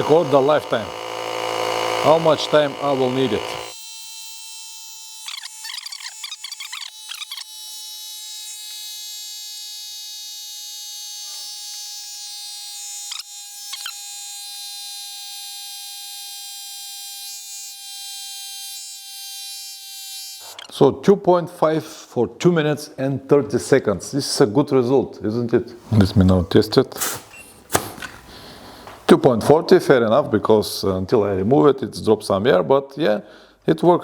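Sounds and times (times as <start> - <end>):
tire inflator compressor buzzing: 0.0 - 3.8.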